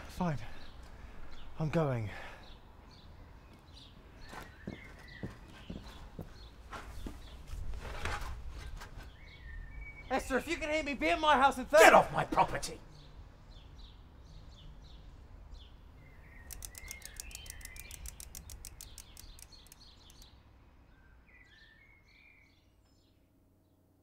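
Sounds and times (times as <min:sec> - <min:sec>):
small birds chirping: 0:00.0 - 0:11.7, 0:12.4 - 0:24.0
fast bird trill: 0:16.3 - 0:20.2.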